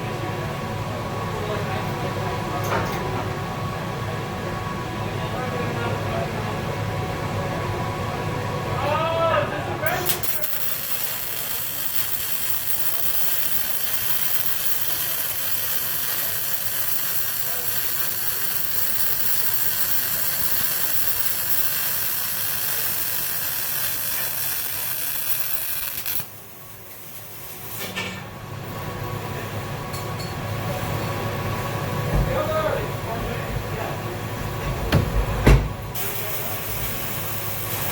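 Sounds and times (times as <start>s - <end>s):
welding arc hissing crackle: 9.9s - 28.0s, 35.9s - 37.9s.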